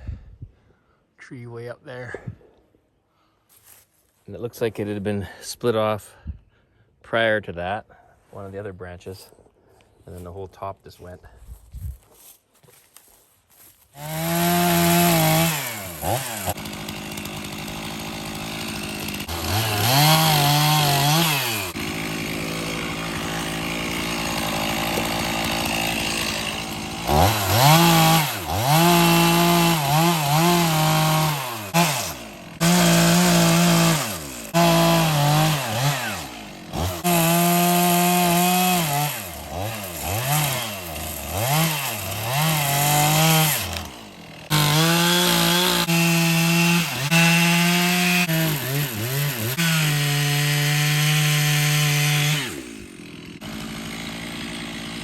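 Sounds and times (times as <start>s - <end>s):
chainsaw revving and idling: 13.5s - 55.0s.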